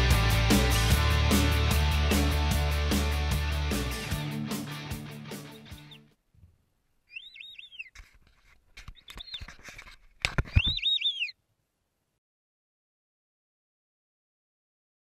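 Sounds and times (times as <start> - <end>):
background music: 0.0 - 6.0
bird whistling calls: 7.1 - 7.9, 10.5 - 11.4.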